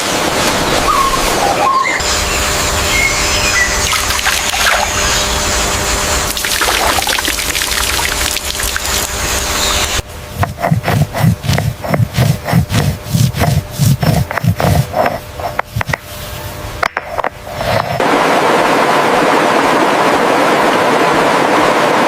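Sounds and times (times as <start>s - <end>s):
steady rushing hiss: 7.5s - 19.2s.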